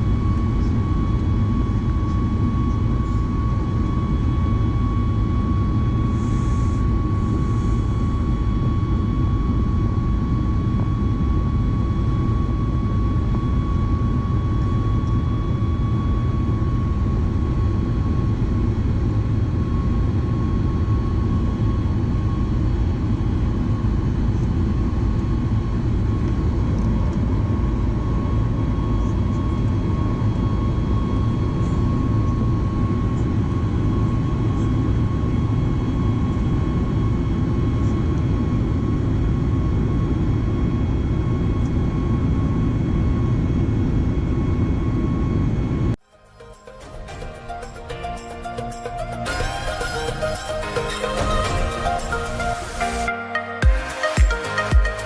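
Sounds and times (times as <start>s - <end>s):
steady high tone: 46.0s - 55.0s.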